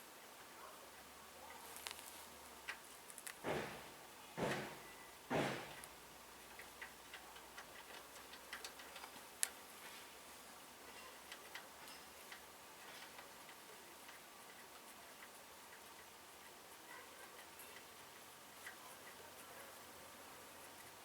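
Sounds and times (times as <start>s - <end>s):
faint light ticks and clicks: 5.8s - 10.0s, 11.2s - 19.7s.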